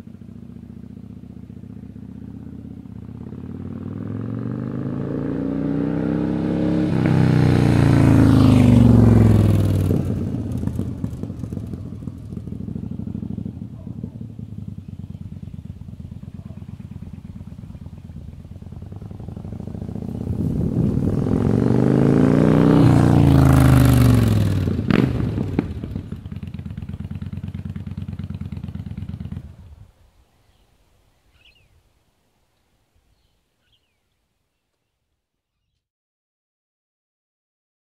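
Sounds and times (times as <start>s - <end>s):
motorcycle engine revving: 0.0s - 29.8s.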